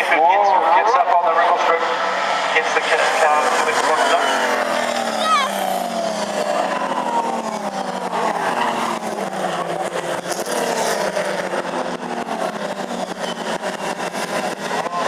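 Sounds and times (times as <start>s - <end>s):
racing cars passing at speed: 0.0s - 15.0s.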